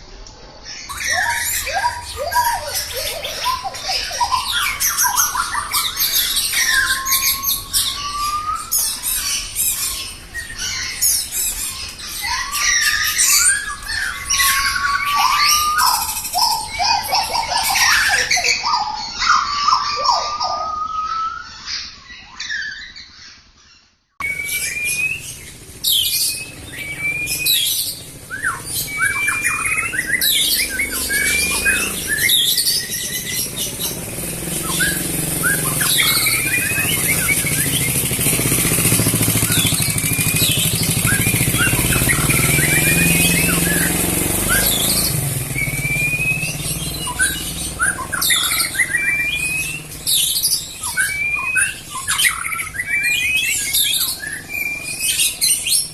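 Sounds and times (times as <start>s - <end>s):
songbird singing: 0.0s - 55.9s.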